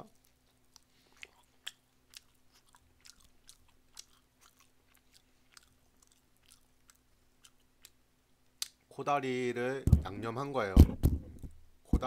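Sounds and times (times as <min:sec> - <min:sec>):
faint chewing clicks and crackles: 0:00.0 - 0:08.8.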